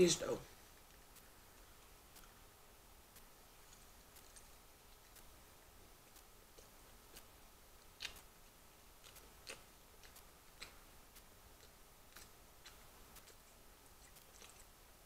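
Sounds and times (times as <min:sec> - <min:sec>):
mouth clicks and chewing smacks: 0:03.7 - 0:05.3, 0:06.1 - 0:14.8.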